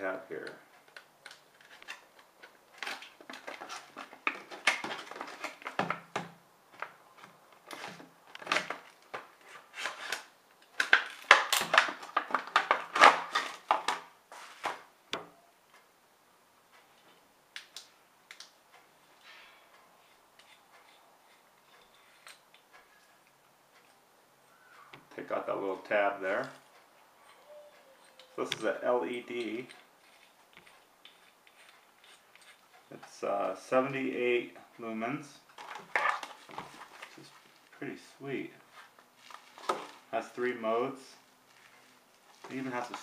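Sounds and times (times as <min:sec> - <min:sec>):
packaging crackling and crinkling: 0:01.3 - 0:06.0, 0:38.8 - 0:40.1.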